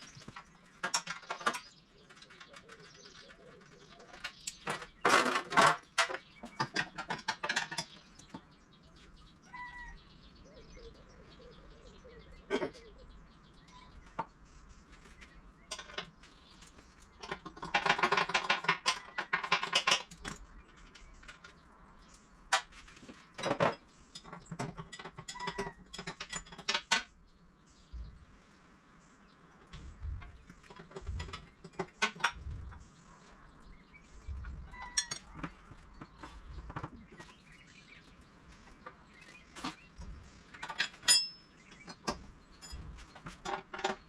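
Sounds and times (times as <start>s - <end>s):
hard objects clicking and clattering: 0.0s - 8.6s, 15.0s - 27.2s, 29.6s - 32.9s, 38.7s - 44.0s.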